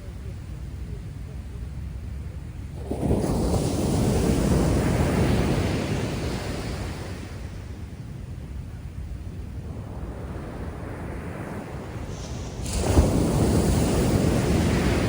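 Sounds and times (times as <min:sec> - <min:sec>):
low sea rumble: 0:00.0 - 0:15.0
wave breaking: 0:09.8 - 0:15.0.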